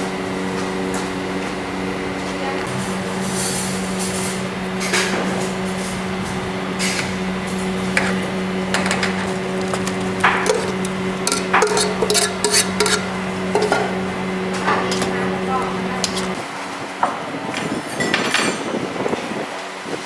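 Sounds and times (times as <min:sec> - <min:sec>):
steady machine hum: 0:00.0 - 0:16.4
utensils and dishes clinking: 0:02.7 - 0:16.4.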